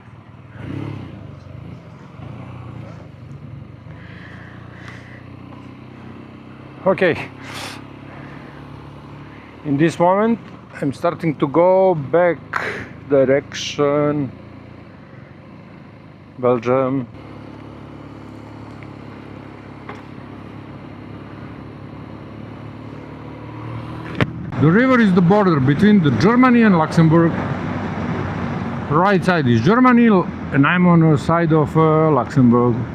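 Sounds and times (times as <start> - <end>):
motorcycle engine running: 0.0 - 32.9
road and wind noise: 0.0 - 32.9.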